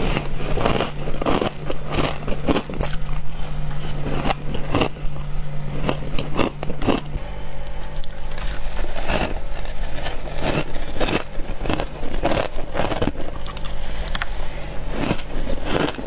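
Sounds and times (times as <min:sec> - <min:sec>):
faint low hum: 0:00.0 - 0:16.0
frost being chewed: 0:00.0 - 0:16.0.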